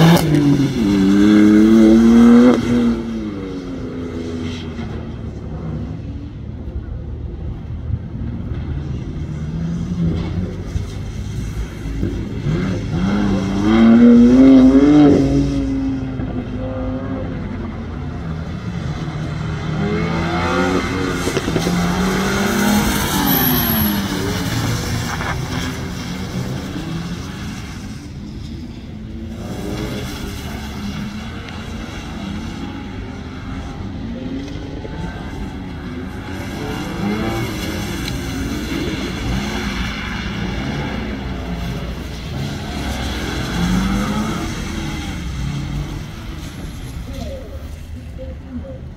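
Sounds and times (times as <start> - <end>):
sports car engines revving: 0.0 - 48.9.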